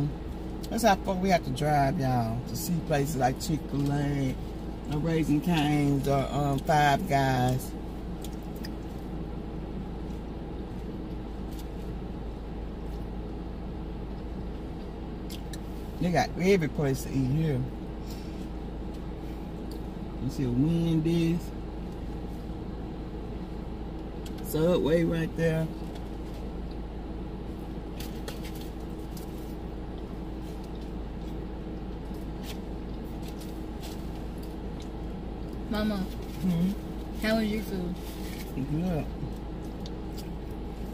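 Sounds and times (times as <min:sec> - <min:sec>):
car cabin engine rumble: 0:00.0 - 0:40.9
faint steady hum: 0:00.0 - 0:40.9.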